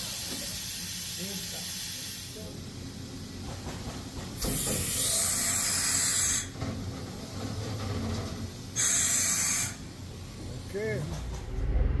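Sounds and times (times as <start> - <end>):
spraying hiss: 0.0 - 6.5, 8.7 - 10.9
low machine hum: 11.3 - 12.0.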